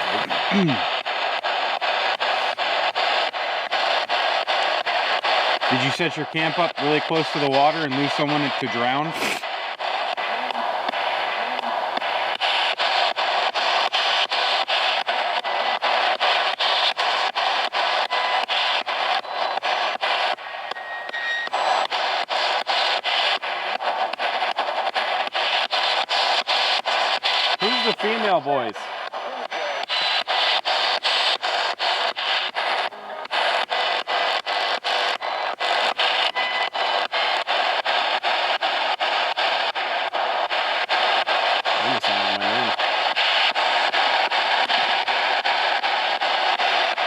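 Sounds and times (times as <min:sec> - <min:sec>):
radio static hiss: 0:00.0 - 0:47.0.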